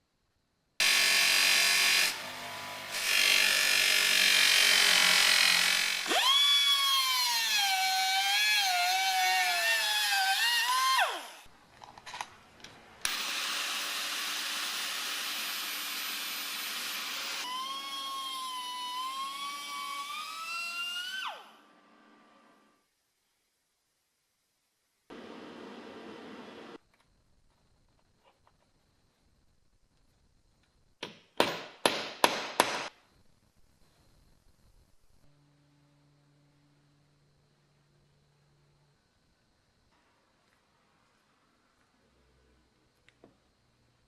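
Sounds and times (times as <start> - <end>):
power tool scraping metal: 0.8 - 6.4
power tool motor whine: 0.8 - 11.4.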